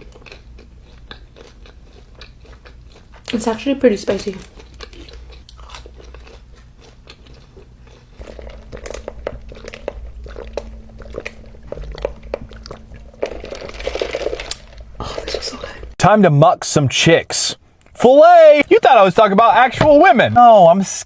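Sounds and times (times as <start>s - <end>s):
crunchy chewing: 0.0s - 15.4s.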